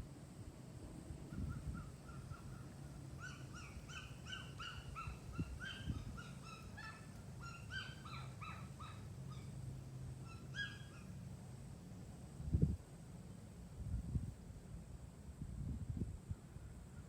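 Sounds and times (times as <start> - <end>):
small animal squeaky calls: 1.3 - 9.5, 10.2 - 11.2.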